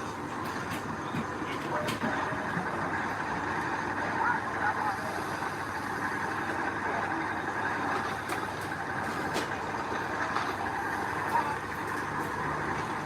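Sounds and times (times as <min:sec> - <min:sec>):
heavy machinery running: 0:00.0 - 0:13.0.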